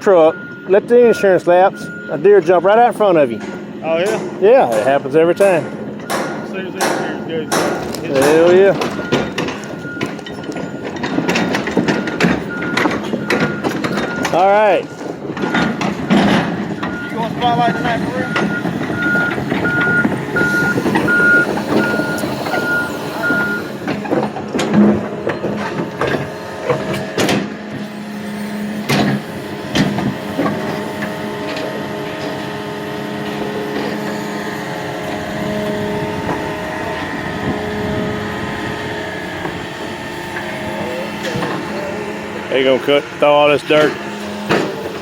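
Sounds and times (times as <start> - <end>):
backup alarm beeping: 0.0 - 23.8
diesel engine running: 0.0 - 45.0
sharp metal clanks: 3.2 - 19.8.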